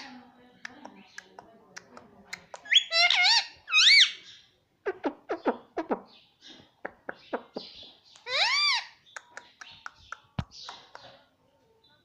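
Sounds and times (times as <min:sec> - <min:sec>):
parrot squawking: 0:02.6 - 0:04.2, 0:08.2 - 0:09.0
parrot chirps: 0:02.6 - 0:04.3, 0:08.1 - 0:11.0.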